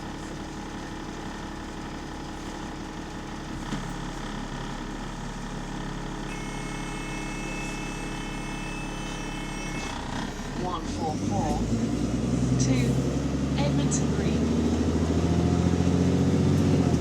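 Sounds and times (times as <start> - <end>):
bus diesel engine running: 0.0 - 17.0
steady high whine: 6.3 - 10.0.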